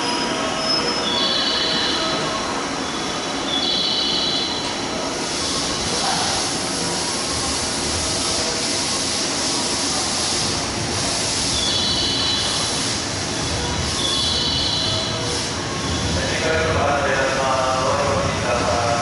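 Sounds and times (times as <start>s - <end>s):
train rushing hiss: 0.0s - 19.0s.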